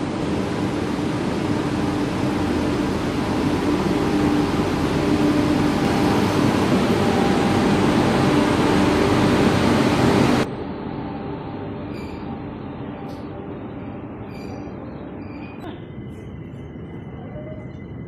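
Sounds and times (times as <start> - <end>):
locomotive passing: 0.0 - 10.9.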